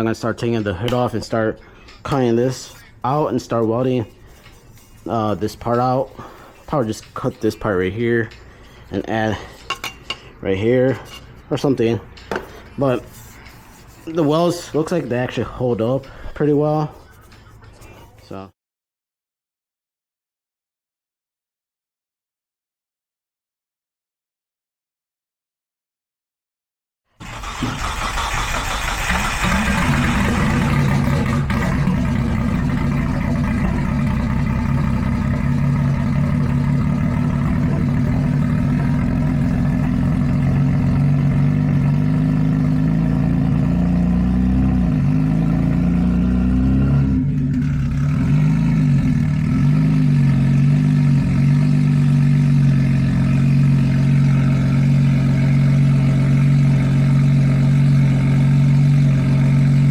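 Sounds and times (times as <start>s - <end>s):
car engine idling: 27.2s - 43.7s, 47.3s - 59.9s.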